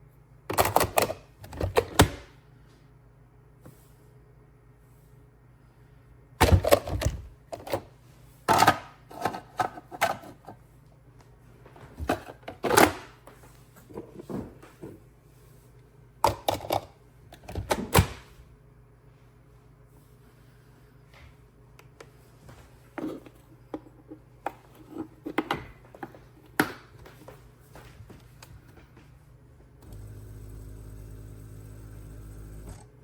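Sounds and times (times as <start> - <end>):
faint low hum: 13.2 - 33.0.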